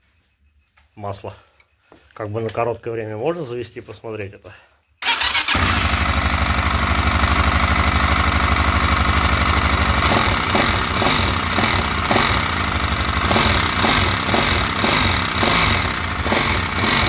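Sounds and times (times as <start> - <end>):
motorcycle engine running: 5.0 - 17.0
sharp repeated engine clatter: 5.0 - 17.0.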